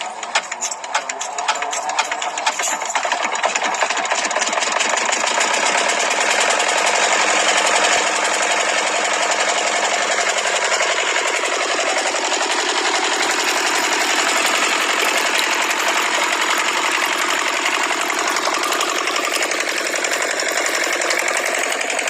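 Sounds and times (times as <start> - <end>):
diesel tractor engine clattering: 0.0 - 22.0.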